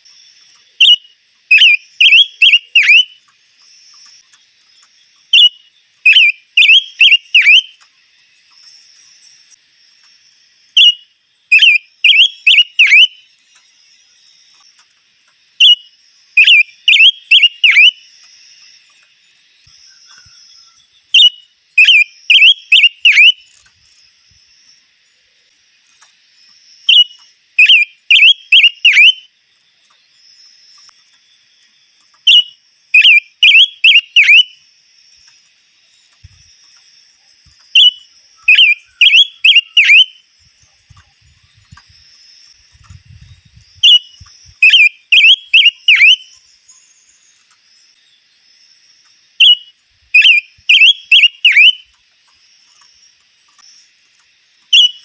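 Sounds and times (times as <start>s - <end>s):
songbird whistling: 0.7s - 3.2s, 5.3s - 7.8s, 10.8s - 13.3s, 15.6s - 18.0s, 19.8s - 23.5s, 26.8s - 29.3s, 32.2s - 34.6s, 37.8s - 40.2s, 43.8s - 47.0s, 49.4s - 51.9s, 54.7s - 55.0s.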